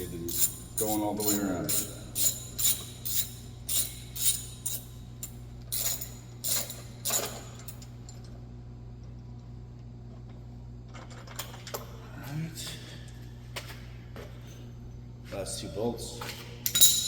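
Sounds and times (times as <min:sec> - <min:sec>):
hand ratchet clicking: 0:00.0 - 0:07.8
steady low hum: 0:00.0 - 0:17.0.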